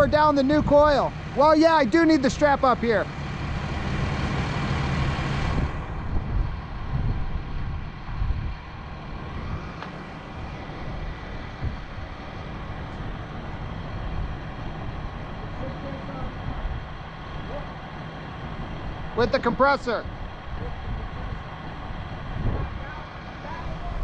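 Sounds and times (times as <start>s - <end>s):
crane engine rumbling: 0.0s - 24.0s
wind on microphone: 3.5s - 15.5s, 16.2s - 17.1s, 20.0s - 24.0s.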